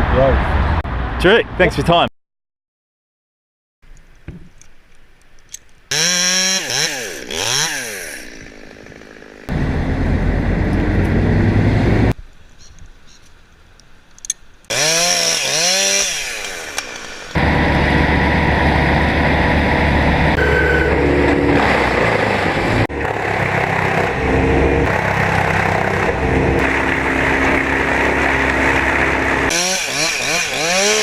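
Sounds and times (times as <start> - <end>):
chainsaw cutting into tree trunk: 5.9 - 9.5, 14.7 - 20.0, 24.8 - 31.0
chainsaw revving: 5.9 - 9.6, 14.7 - 31.0.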